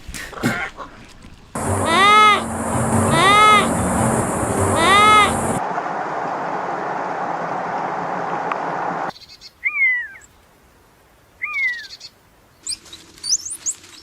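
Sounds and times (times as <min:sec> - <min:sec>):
rising and falling calls: 0:01.6 - 0:09.1
steady hiss: 0:01.6 - 0:09.1.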